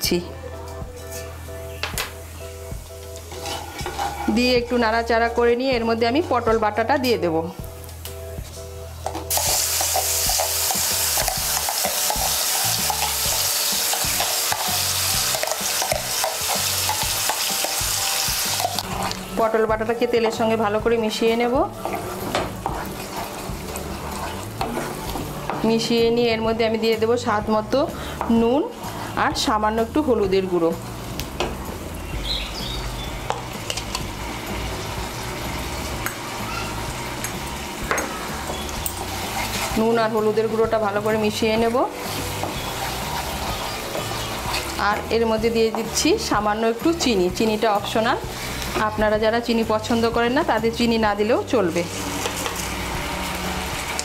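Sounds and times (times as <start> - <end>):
spatula scraping pan: 0.9 - 1.4, 3.2 - 4.8, 9.3 - 19.3, 21.7 - 25.7, 38.2 - 46.0
paste sizzling in oil: 2.1 - 6.9, 7.7 - 26.5, 27.9 - 31.4, 32.2 - 54.0
spoon scraping a bowl: 3.3 - 4.4, 21.8 - 25.3, 38.5 - 39.8, 42.0 - 44.8
spatula tapping pan: 42.2 - 45.1.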